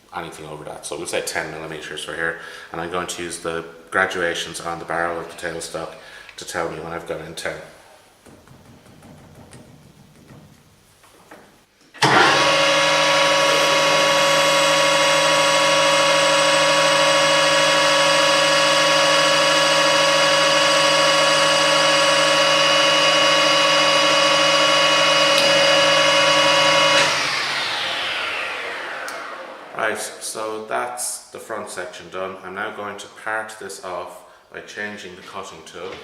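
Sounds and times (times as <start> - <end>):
drill boring into brass: 12.0 - 29.7
lathe motor whining: 12.0 - 29.9.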